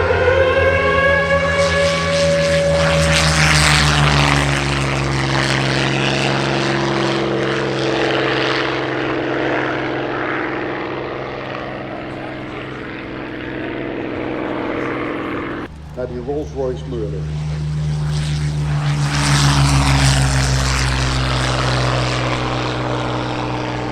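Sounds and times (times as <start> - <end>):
propeller plane flying past: 0.0 - 23.9.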